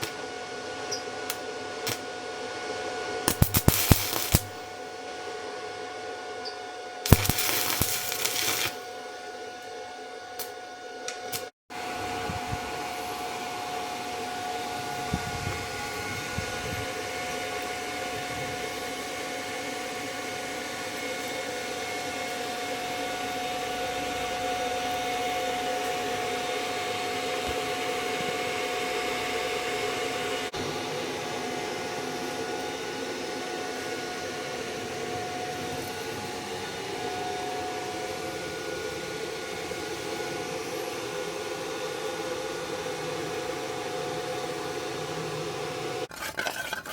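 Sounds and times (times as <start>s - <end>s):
constant hum: 0.0s - 46.9s
welding arc hiss: 1.2s - 2.1s, 3.2s - 4.8s, 7.0s - 8.9s, 10.4s - 10.6s, 11.2s - 11.5s.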